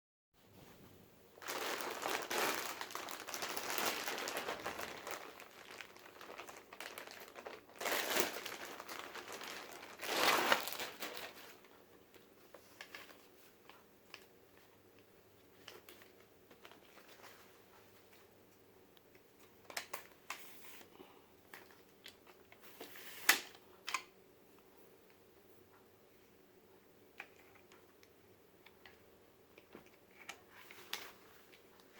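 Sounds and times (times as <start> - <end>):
packaging crinkling and rustling: 1.4 - 14.3, 15.6 - 17.5.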